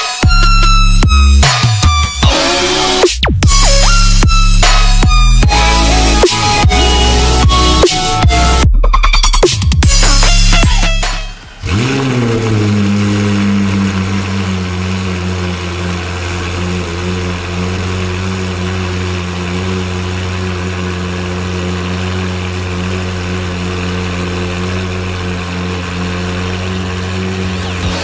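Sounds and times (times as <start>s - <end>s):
sports car engine starting and idling: 0.2s - 28.0s.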